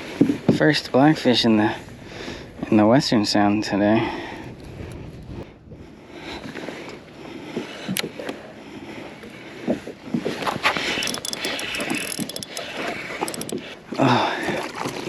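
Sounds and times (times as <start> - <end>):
knocking and clicking on kayak: 11.0 - 13.8.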